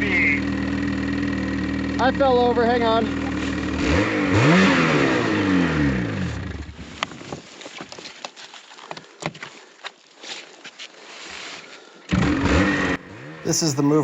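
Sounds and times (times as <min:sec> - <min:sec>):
engine revving and spinning down: 0:03.0 - 0:06.7, 0:12.1 - 0:13.7.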